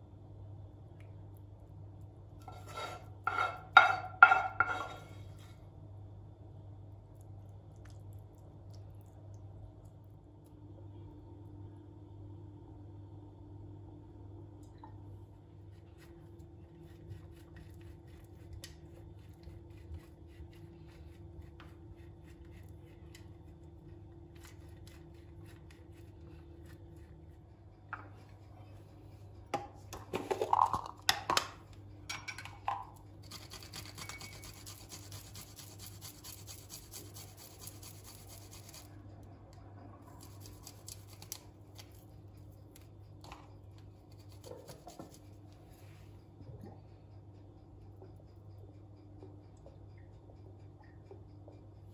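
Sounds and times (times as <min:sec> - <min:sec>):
steady low hum: 0:00.0 - 0:51.9
soft scraping and rubbing: 0:02.4 - 0:03.6
kitchen clatters: 0:02.4 - 0:05.2, 0:29.7 - 0:33.0.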